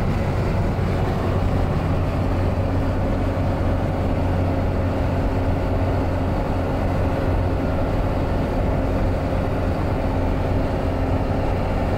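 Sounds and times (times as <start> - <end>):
car engine drone: 0.0 - 11.9.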